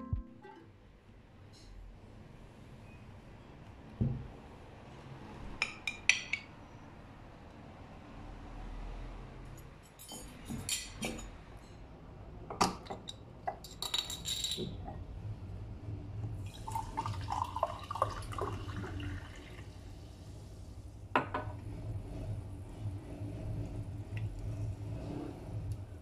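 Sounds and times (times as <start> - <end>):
glassware clinking: 9.9 - 11.3, 12.6 - 14.9
liquid poured into glass: 16.5 - 19.6.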